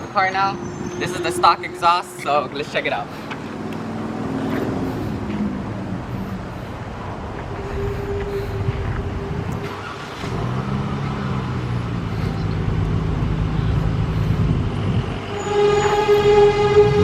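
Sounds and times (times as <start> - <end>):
car engine low note: 4.0 - 17.0
thin steady whine: 6.1 - 9.9.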